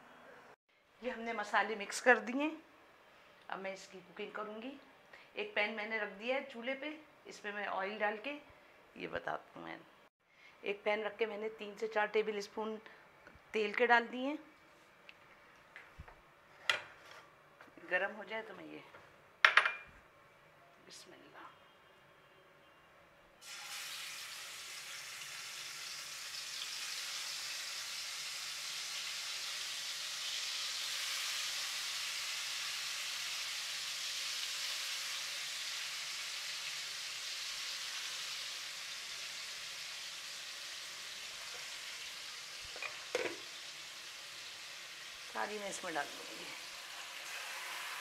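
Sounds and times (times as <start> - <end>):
chicken sizzling in hot oil: 23.4 - 48.0.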